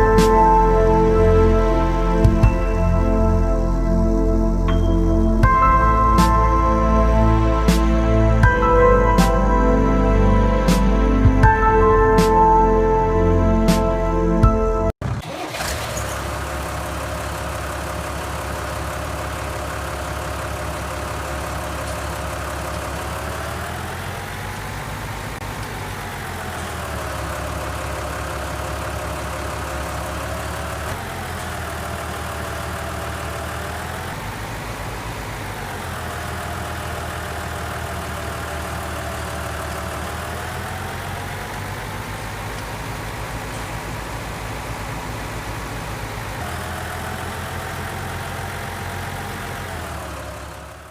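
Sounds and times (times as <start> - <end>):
diesel engine idling and revving: 0.0 - 50.9.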